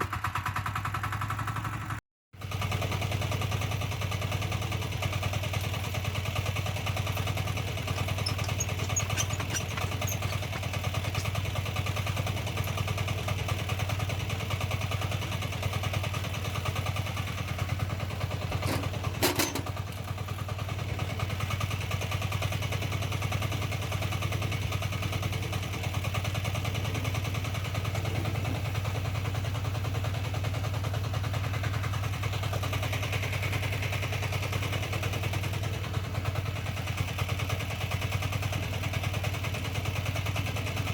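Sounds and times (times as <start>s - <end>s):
diesel engine clattering: 0.0s - 40.9s
sharp metal clanks: 18.6s - 19.8s.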